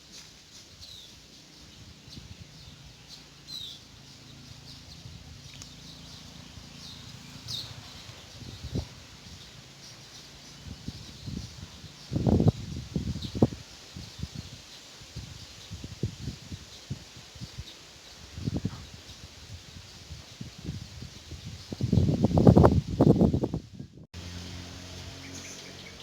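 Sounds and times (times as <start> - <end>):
birds chirping: 0.0 - 23.2, 24.2 - 26.0.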